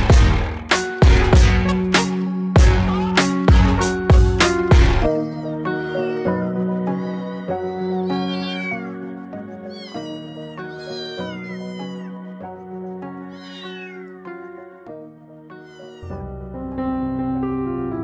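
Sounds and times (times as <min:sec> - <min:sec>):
background music of held notes: 0:00.0 - 0:18.0
cat meowing: 0:01.8 - 0:14.6, 0:15.5 - 0:16.2.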